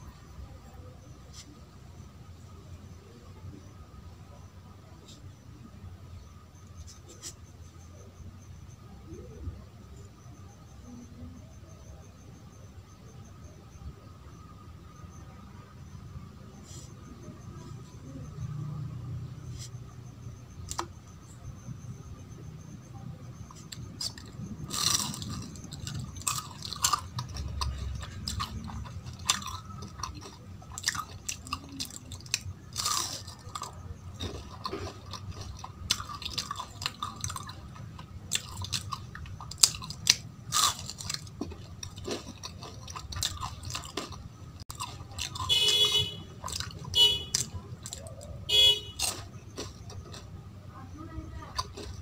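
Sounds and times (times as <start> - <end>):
chewing and crunching: 19.5 - 21.9, 23.1 - 52.0.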